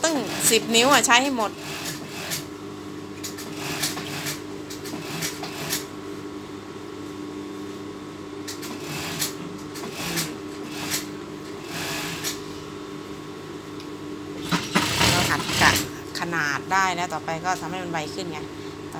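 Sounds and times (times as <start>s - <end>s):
sewing machine running: 0.0s - 2.5s, 3.2s - 5.9s, 8.6s - 12.4s, 14.4s - 16.4s.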